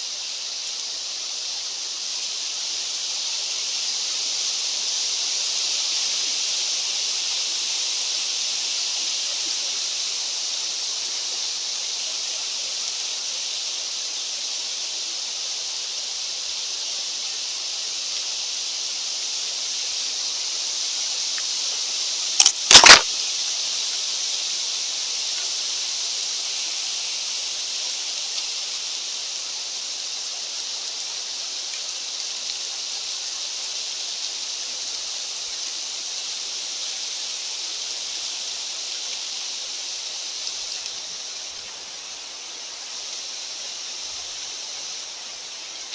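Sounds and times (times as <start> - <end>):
loud sharp snap: 22.4 - 23.1
short click: 22.4 - 23.1.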